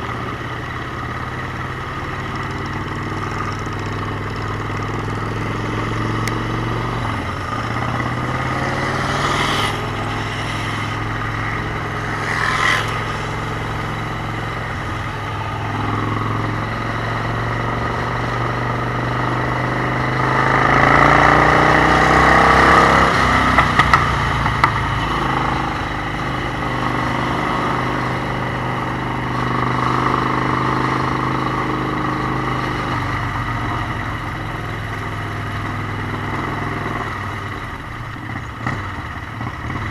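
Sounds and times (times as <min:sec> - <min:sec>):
motorcycle engines running: 0:00.0 - 0:39.9.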